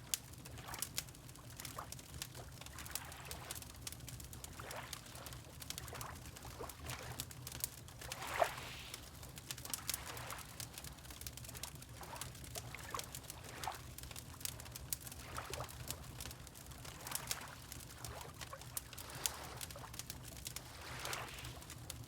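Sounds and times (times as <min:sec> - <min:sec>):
wood fire crackling: 0:00.0 - 0:22.0
water lapping: 0:08.1 - 0:09.0, 0:09.8 - 0:10.8, 0:15.2 - 0:15.8, 0:16.8 - 0:21.7.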